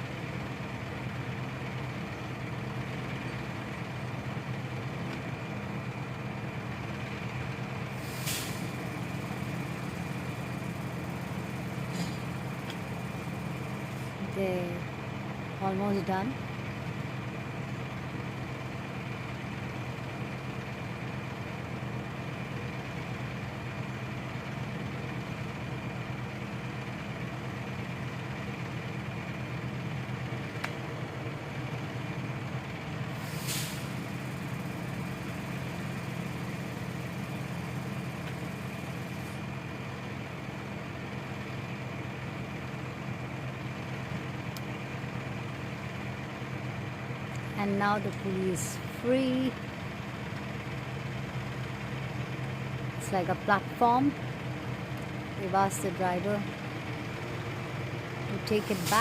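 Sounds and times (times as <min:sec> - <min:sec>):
truck engine running: 0:00.0 - 0:59.0
short hiss: 0:08.0 - 0:08.7.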